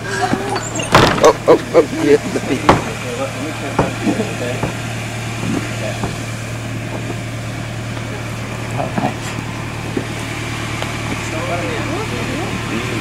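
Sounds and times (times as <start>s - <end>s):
car engine idling: 0.0s - 13.0s
voices: 0.0s - 13.0s.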